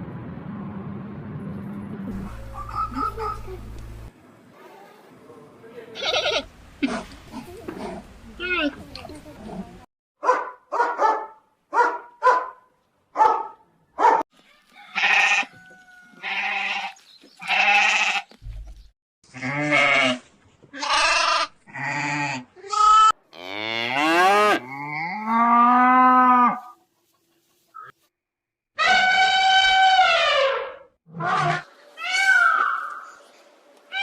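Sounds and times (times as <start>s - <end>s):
dog barking: 10.2s - 14.2s.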